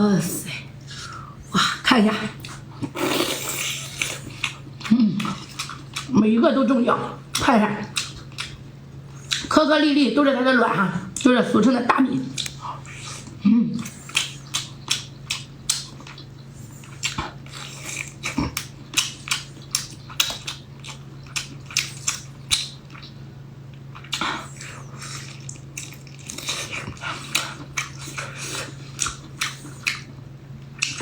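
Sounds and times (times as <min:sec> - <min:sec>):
steady low hum: 0:00.0 - 0:31.0
chewing and lip-smacking: 0:02.4 - 0:06.1, 0:07.3 - 0:09.5, 0:12.3 - 0:31.0.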